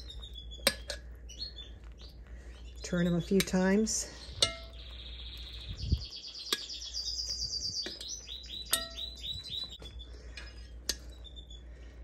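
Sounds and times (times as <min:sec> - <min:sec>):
songbird trilling: 0:00.0 - 0:11.6
metal tongs clinking on pot: 0:00.6 - 0:01.0, 0:02.9 - 0:04.8, 0:08.7 - 0:09.2.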